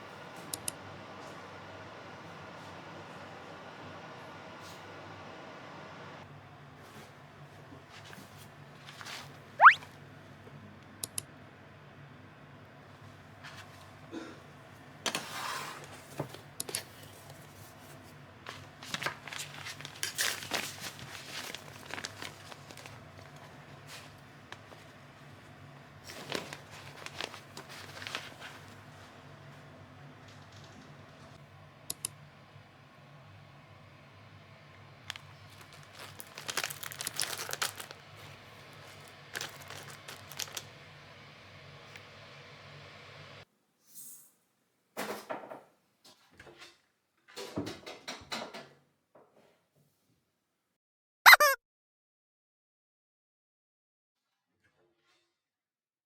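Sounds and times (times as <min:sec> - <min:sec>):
crinkling and rustling: 0:07.9 - 0:09.4, 0:15.1 - 0:29.2, 0:35.0 - 0:40.8.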